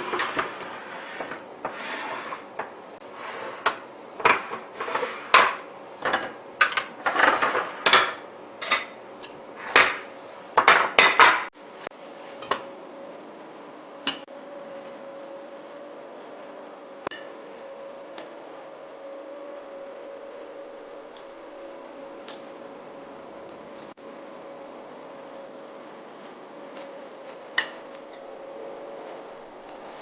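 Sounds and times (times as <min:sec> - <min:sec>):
faint steady hum: 0:00.0 - 0:30.0
dishes and utensils clinking: 0:03.4 - 0:11.5, 0:27.6 - 0:28.2.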